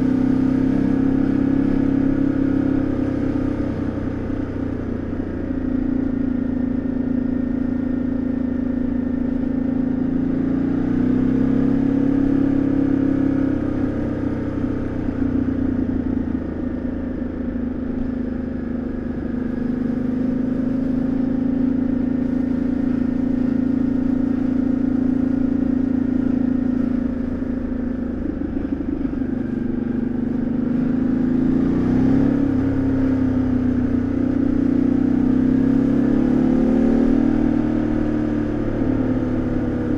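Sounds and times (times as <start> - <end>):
motorcycle engine revving: 10.4 - 39.9.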